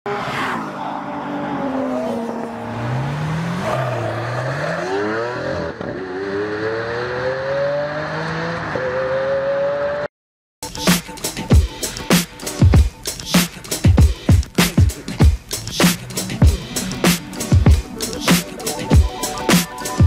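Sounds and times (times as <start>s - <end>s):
car engine accelerating: 0.1s - 10.1s.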